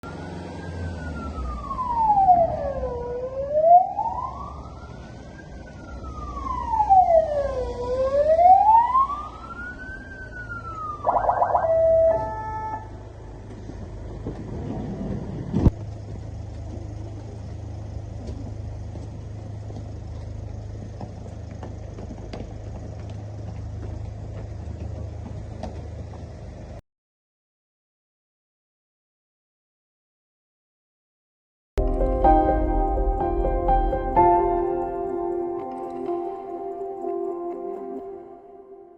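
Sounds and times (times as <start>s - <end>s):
stepped siren tone: 0.0s - 13.2s
police siren wailing: 0.0s - 13.3s
steady low hum: 31.8s - 38.6s.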